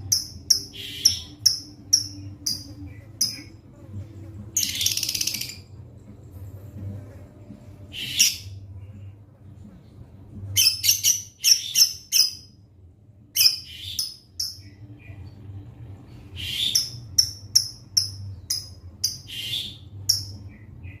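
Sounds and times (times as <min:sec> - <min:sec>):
bird chirping high-pitched: 0:00.0 - 0:03.6, 0:04.6 - 0:05.7, 0:07.9 - 0:08.6, 0:10.6 - 0:12.6, 0:13.3 - 0:15.4, 0:16.3 - 0:21.0.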